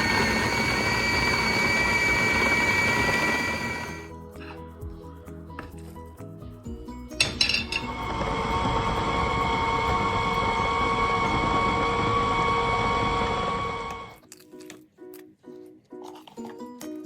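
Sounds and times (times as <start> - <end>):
blender motor running: 0.0 - 4.1, 7.8 - 14.2.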